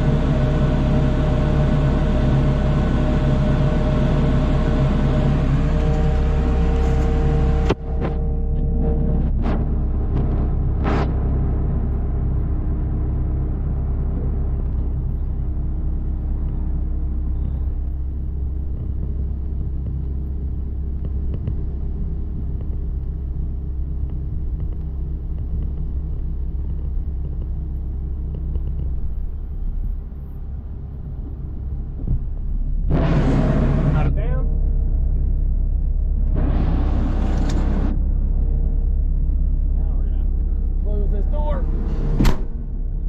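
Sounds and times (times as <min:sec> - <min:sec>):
vehicle engine running: 0:00.0 - 0:43.0.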